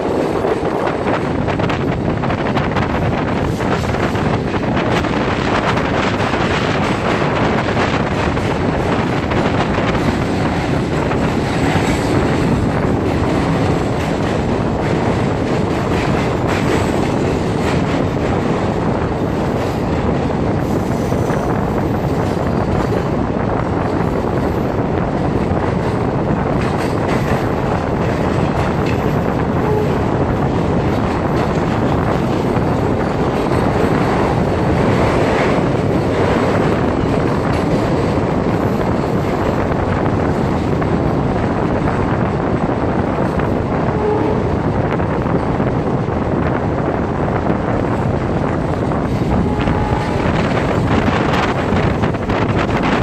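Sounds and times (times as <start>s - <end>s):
train wheels rushing on rails: 0.0s - 53.0s
wind on microphone: 0.0s - 53.0s.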